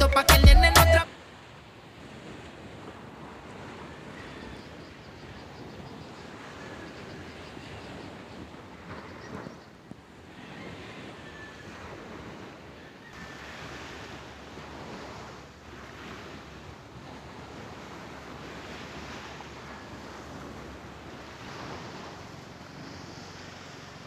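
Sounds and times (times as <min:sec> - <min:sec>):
wind on microphone: 0:01.0 - 0:24.0
surf washing onto beach: 0:13.2 - 0:24.0.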